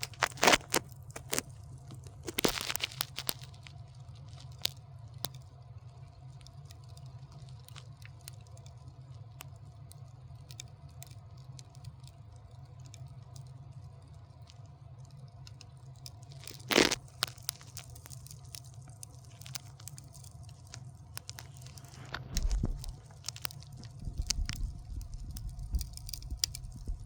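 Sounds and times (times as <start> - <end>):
fire crackling and popping: 0.0 - 27.0
steady low hum: 18.7 - 27.0.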